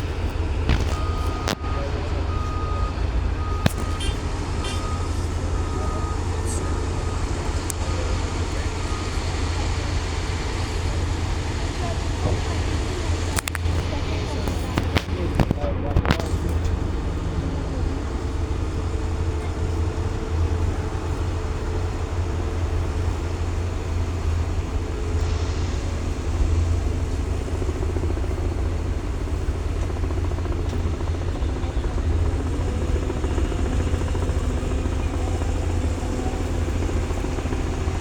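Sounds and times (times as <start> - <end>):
tractor engine rumbling: 0.0 - 38.0.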